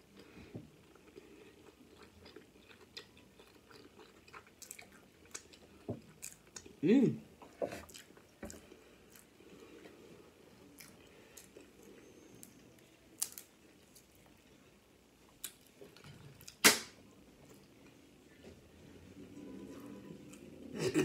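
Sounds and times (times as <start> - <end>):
chewing and mouth noises: 0.1 - 6.8, 7.4 - 9.9
loud sharp crack: 16.6 - 17.0.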